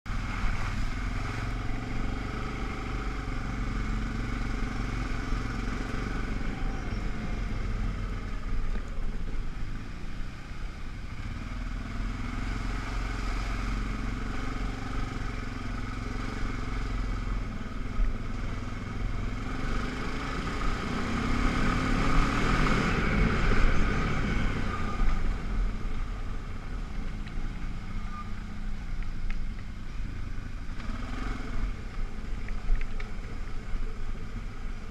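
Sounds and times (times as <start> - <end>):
atv engine revving: 0.1 - 34.9.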